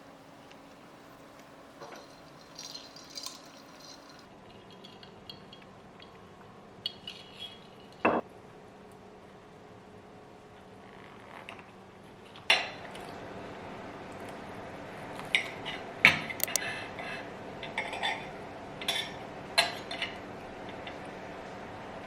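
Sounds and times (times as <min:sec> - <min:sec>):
dishes and utensils handled: 0:01.4 - 0:05.6
glass or ceramic clinks: 0:01.8 - 0:04.3.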